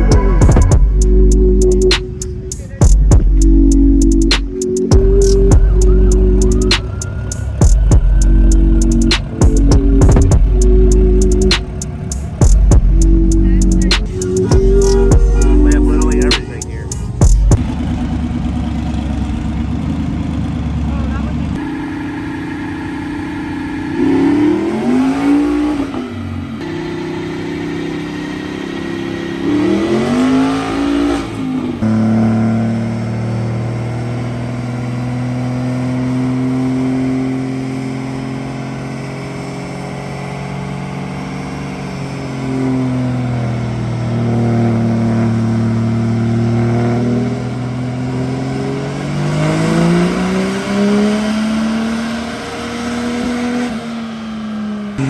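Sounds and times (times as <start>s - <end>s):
vehicle engine revving: 0.0s - 55.0s.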